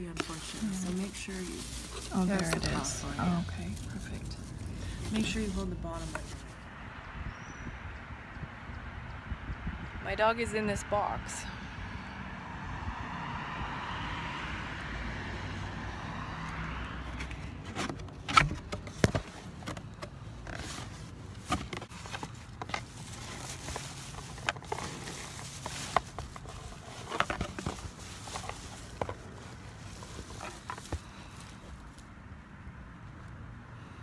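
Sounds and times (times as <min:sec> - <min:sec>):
cardboard box being opened: 0:00.0 - 0:06.6, 0:17.1 - 0:32.0
paper packing rustling: 0:00.0 - 0:06.6, 0:20.5 - 0:32.0.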